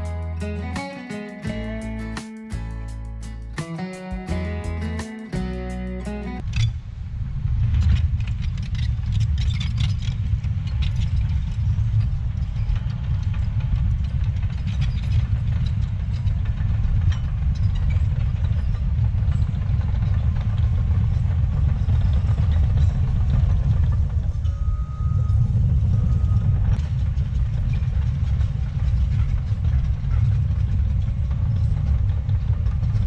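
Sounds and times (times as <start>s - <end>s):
diesel engine rumbling: 0.0s - 6.4s.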